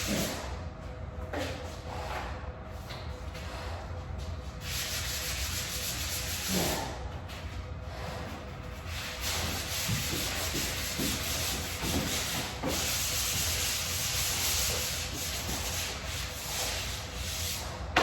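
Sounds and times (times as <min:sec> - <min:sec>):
drywall sanding by hand: 0:00.0 - 0:00.6, 0:04.4 - 0:18.0.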